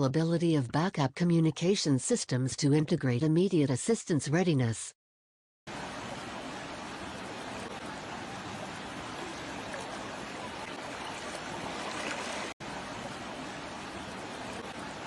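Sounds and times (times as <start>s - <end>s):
floodwater rushing: 5.7s - 15.0s.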